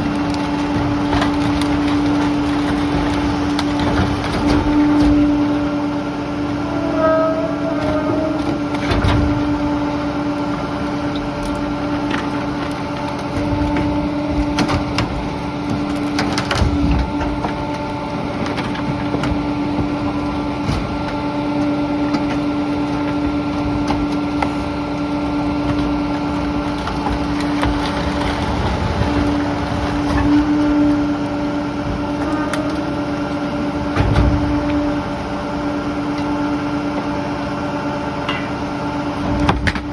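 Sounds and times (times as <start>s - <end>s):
garbage truck mechanical hum: 0.0s - 39.9s
knocks and clunks: 7.0s - 9.9s, 33.9s - 34.8s.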